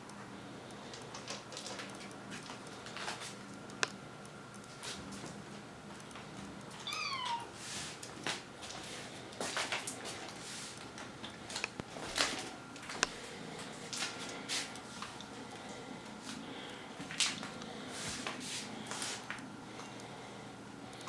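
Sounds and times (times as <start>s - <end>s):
kitten meowing: 6.8s - 7.5s.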